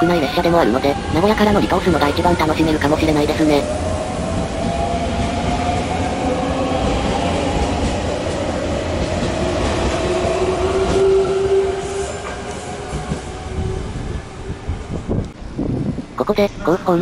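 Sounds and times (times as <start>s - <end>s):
train whine rising in pitch: 3.6s - 15.3s
train wheels and running gear: 3.9s - 16.2s.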